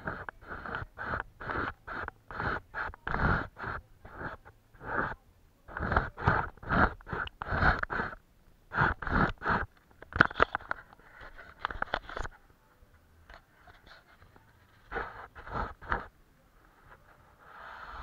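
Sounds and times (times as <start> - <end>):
scratchy strokes on paper: 0.0 - 9.7, 13.6 - 16.1, 16.7 - 18.0.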